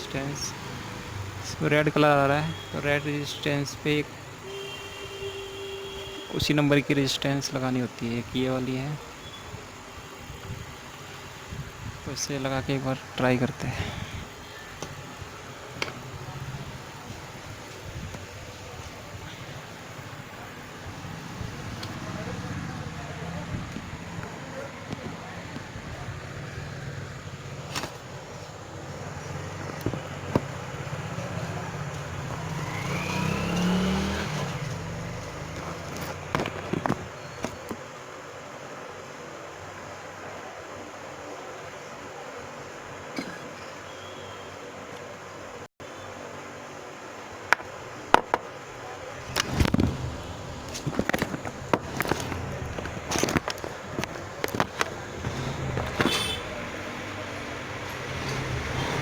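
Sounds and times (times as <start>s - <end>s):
vehicle engine passing: 28.9s - 36.2s, 51.6s - 59.0s
hand tools clicking and clattering: 34.4s - 37.8s, 49.2s - 56.9s
low rumble of handling: 49.2s - 56.9s.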